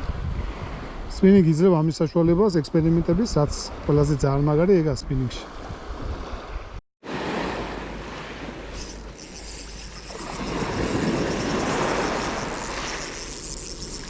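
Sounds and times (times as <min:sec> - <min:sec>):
wind on microphone: 0:00.0 - 0:01.2, 0:05.5 - 0:06.8, 0:08.0 - 0:14.0
sea waves washing: 0:07.0 - 0:14.0.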